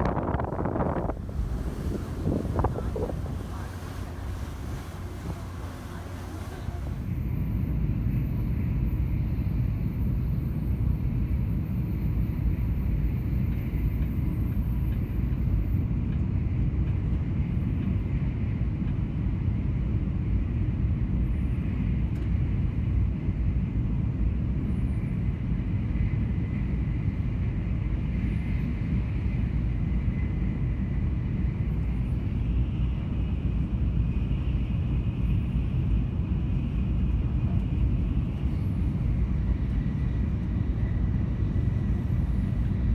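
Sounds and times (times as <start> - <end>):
faint thin whine: 0.0 - 7.2
vehicle rumbling: 0.0 - 7.9, 31.0 - 42.9.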